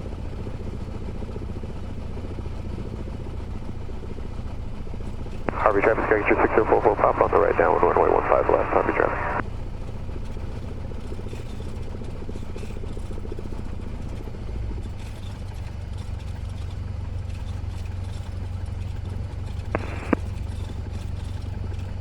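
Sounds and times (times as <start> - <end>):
small plane engine drone: 0.2 - 22.0.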